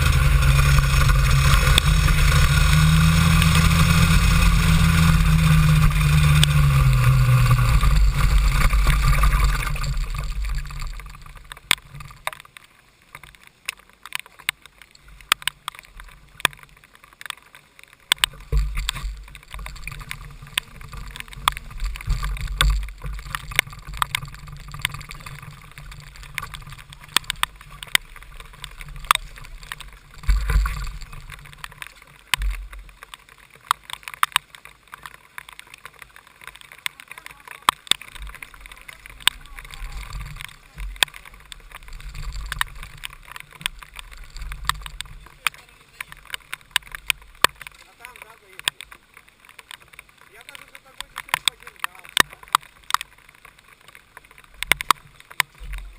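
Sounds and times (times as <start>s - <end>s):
kart engine running: 0.0s - 12.1s
low rumbles: 0.0s - 13.3s, 17.9s - 55.9s
heavy rain tapping on camera: 0.0s - 55.9s.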